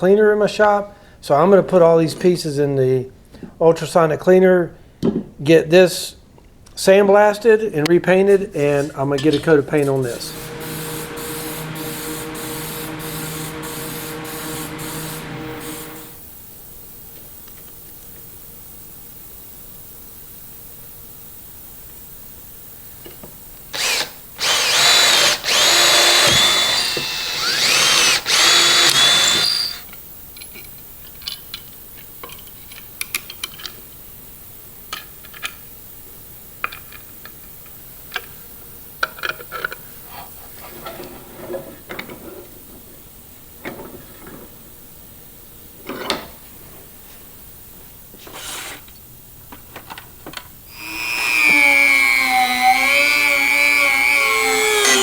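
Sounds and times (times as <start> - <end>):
handheld power tool whining: 9.8 - 16.2, 23.7 - 30.0, 50.7 - 55.0.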